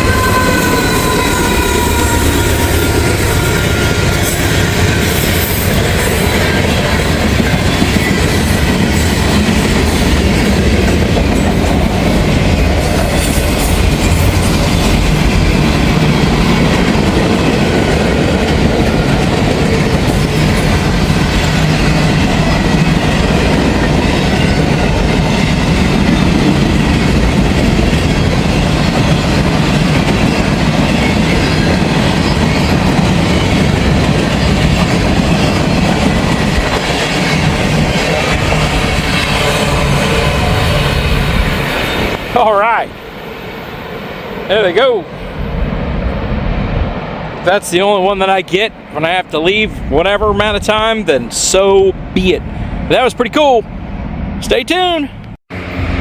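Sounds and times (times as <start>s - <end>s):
faint squeal: 0.0s - 4.0s
freight train wheels rumbling: 0.0s - 56.0s
wheels clickety-clack: 2.8s - 42.1s.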